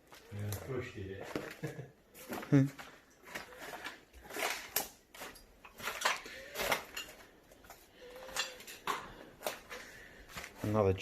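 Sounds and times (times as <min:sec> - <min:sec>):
hard objects clinking and knocking: 0:04.3 - 0:09.8.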